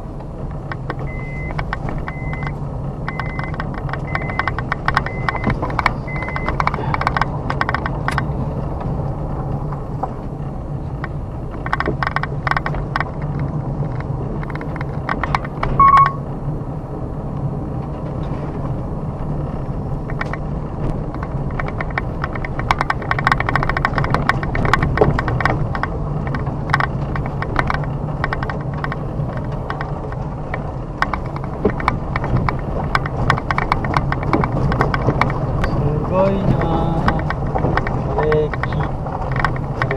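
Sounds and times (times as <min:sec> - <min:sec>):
car engine and road hum: 0:00.0 - 0:39.9.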